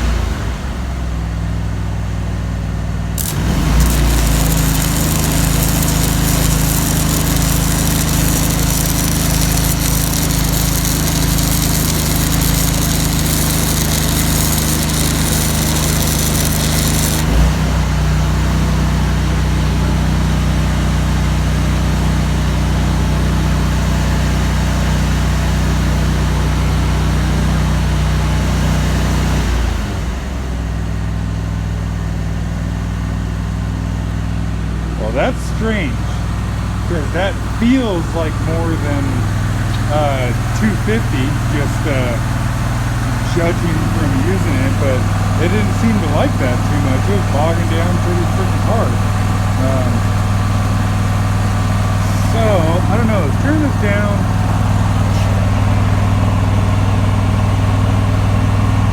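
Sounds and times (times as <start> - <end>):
welder engine bogging down: 3.1 - 19.1, 35.0 - 58.9
welding arc crackling and hissing: 3.2 - 17.7, 36.2 - 55.6.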